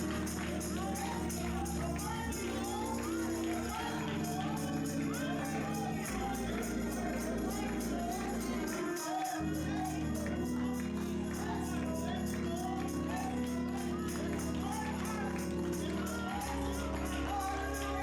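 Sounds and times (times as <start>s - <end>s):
bass notes: 0.0s - 8.8s
person singing: 0.0s - 18.0s
tambourine beat: 0.0s - 18.0s.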